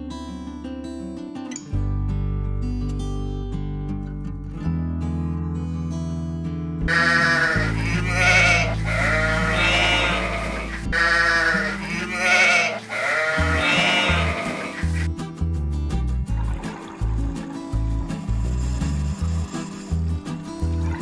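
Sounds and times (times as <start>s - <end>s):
background music: 0.9s - 21.0s
sheep bleating: 6.9s - 15.1s.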